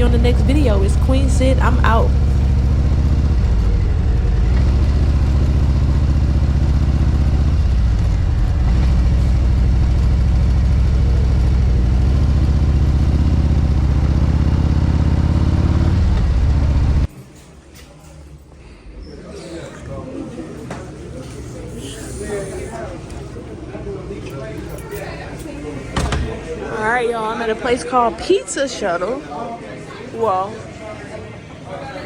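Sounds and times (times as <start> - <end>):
motorcycle engine running: 0.0 - 17.1.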